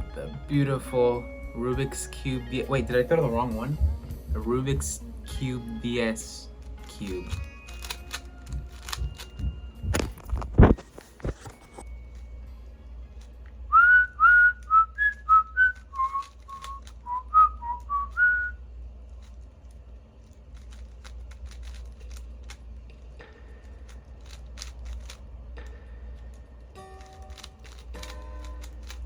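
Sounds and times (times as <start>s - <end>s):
person whistling a tune: 13.7s - 18.6s.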